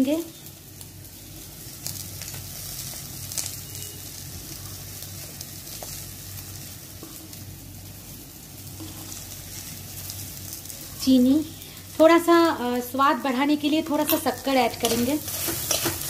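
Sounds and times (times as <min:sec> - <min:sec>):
food sizzling in hot oil: 0:00.0 - 0:16.0
spatula stirring with light knocks: 0:14.8 - 0:16.0.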